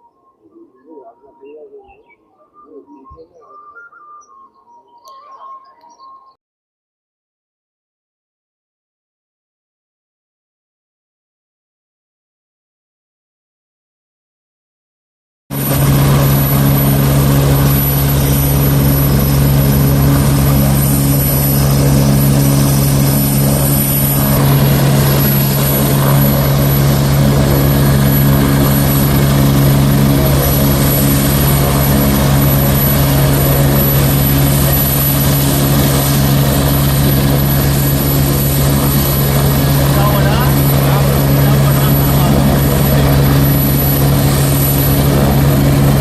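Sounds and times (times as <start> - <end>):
helicopter running: 15.5 - 46.0.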